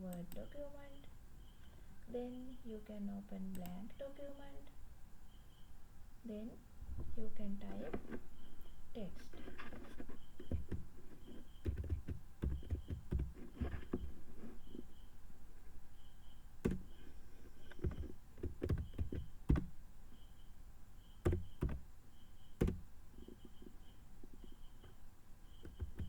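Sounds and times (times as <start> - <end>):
typing on keys: 3.5 - 3.8, 9.2 - 14.8, 16.6 - 17.0, 17.6 - 19.8, 21.2 - 21.9, 22.5 - 23.8, 25.6 - 26.0.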